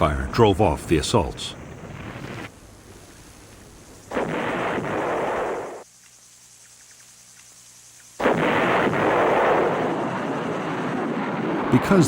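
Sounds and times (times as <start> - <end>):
artillery blasts: 4.1 - 5.8, 8.2 - 12.0.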